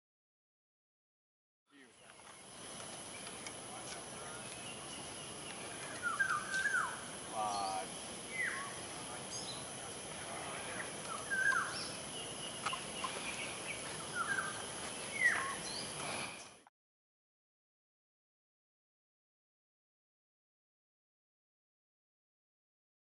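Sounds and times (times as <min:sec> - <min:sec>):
bird trill: 0:04.2 - 0:09.7, 0:10.7 - 0:16.6
birds whistling: 0:04.2 - 0:16.6.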